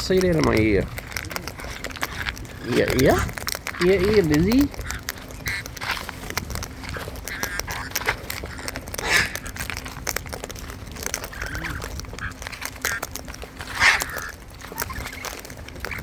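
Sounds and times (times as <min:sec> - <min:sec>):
parrots squawking: 0:00.0 - 0:16.0
small clicks and taps: 0:00.0 - 0:16.0.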